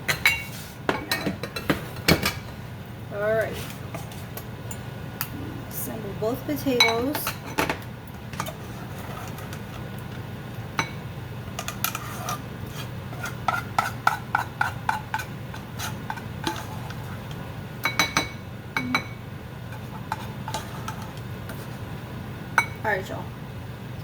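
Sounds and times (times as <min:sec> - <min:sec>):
spoon scraping and clinking bowls: 0:11.6 - 0:21.7.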